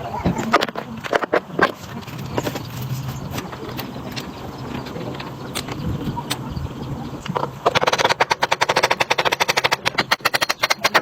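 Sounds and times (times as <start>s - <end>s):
fast mechanical clicking rattle: 7.6s - 11.0s.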